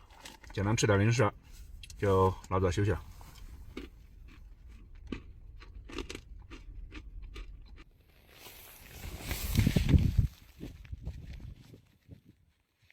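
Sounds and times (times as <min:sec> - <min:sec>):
person chewing crunchy snack: 0:03.1 - 0:09.9.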